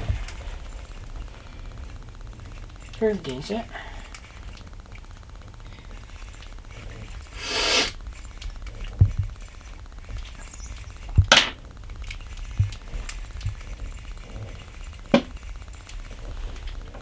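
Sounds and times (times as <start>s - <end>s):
swishing hiss: 5.4s - 11.5s
dull thumps: 7.9s - 17.0s.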